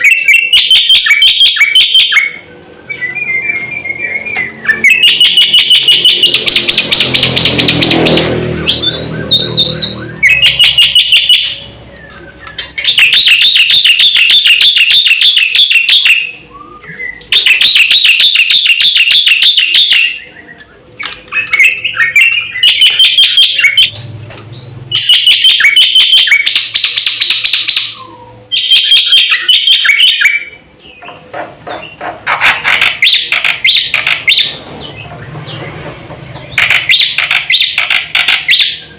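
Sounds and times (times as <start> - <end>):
bird singing fast high notes: 4.0 - 16.3.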